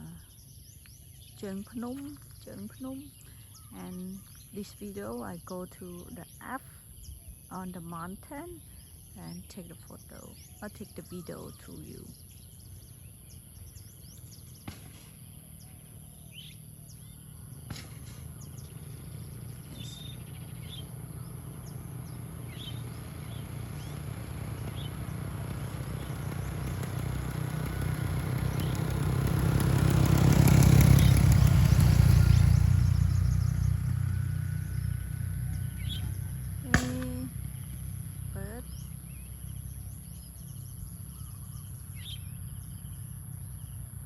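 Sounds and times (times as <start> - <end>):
birds chirping: 0.0 - 44.0
vehicle engine passing: 13.8 - 44.0.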